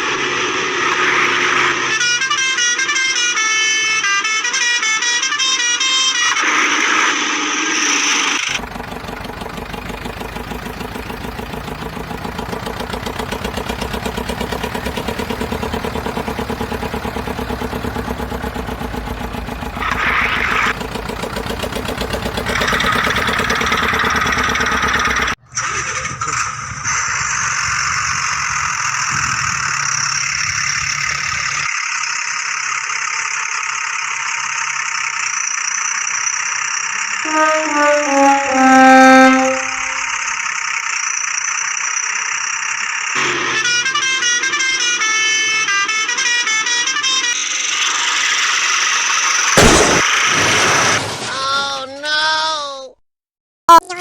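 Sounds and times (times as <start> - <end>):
higher engine drone: 8.5 - 25.4, 37.3 - 40.3
tractor engine chugging: 8.5 - 25.4, 27.2 - 46.6.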